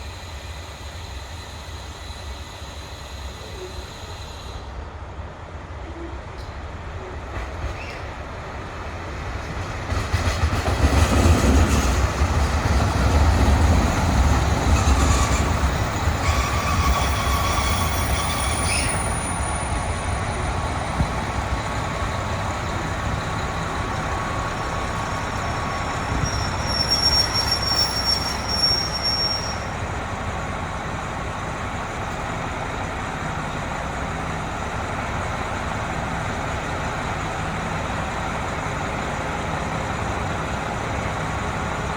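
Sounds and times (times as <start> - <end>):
train wheels squealing: 0.0 - 4.8, 7.0 - 8.3, 10.2 - 30.1
train engine and wheel rumble: 0.0 - 41.9.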